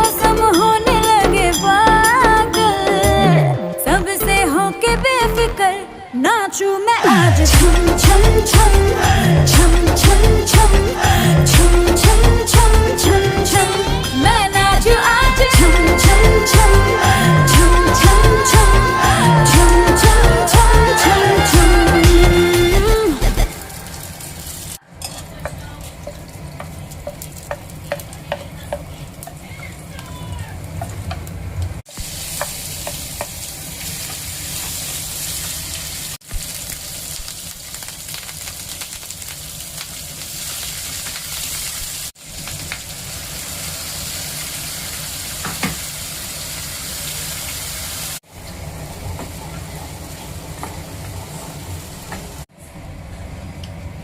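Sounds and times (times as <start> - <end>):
food sizzling in oil: 23.5 - 30.0, 31.9 - 48.2.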